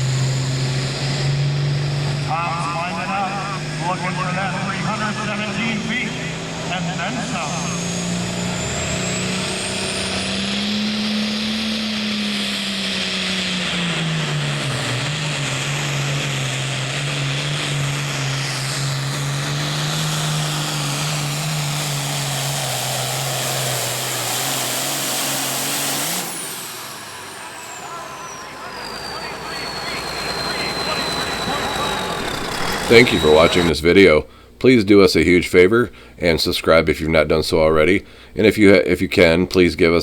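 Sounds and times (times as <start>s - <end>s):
diesel engine roaring: 0.0s - 40.0s
high whine: 26.6s - 34.3s.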